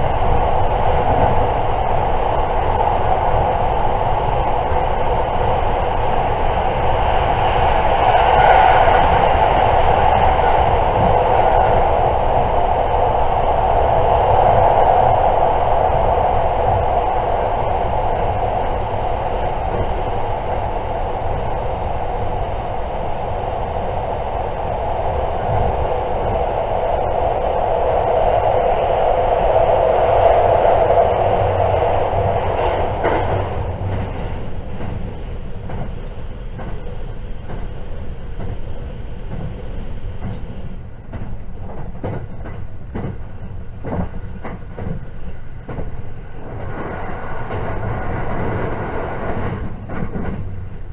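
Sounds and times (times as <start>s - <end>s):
train interior rumble and roar: 0.0s - 50.9s
wheel clicks over rail joints: 33.0s - 50.8s.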